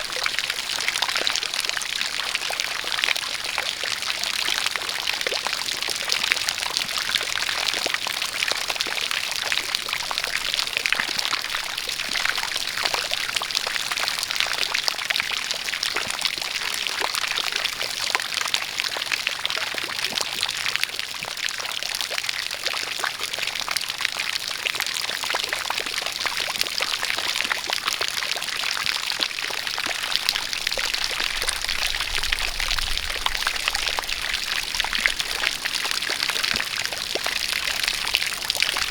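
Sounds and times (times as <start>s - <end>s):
water pouring and splashing: 25.1s - 38.9s
rain falling: 29.2s - 38.9s.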